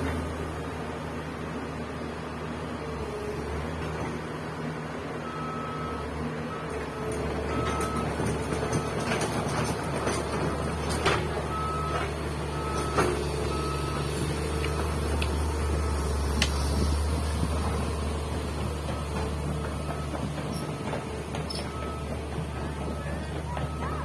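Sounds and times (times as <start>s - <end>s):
excavator diesel engine running: 0.0s - 24.0s
machine knocking: 17.4s - 24.0s
warning alarm short beeps: 22.9s - 24.0s.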